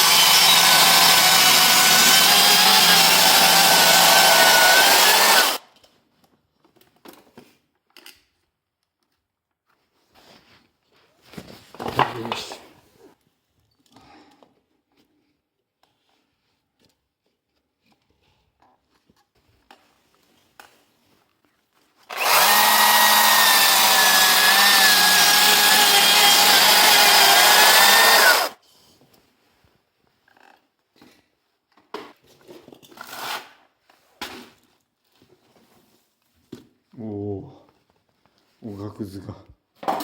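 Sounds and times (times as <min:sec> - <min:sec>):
power tool cutting wood: 0:00.0 - 0:05.6, 0:22.1 - 0:28.6.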